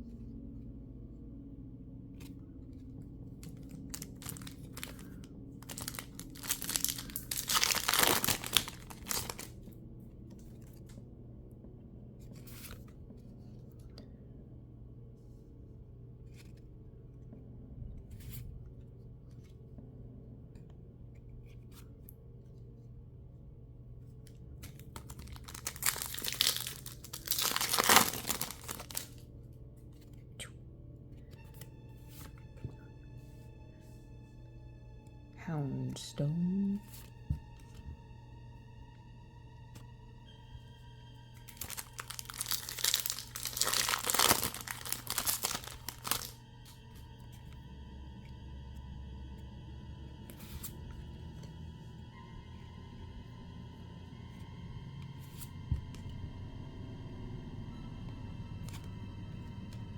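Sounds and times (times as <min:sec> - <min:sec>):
wrapper tearing and crinkling: 0:03.4 - 0:09.6, 0:24.7 - 0:29.2, 0:41.5 - 0:46.4.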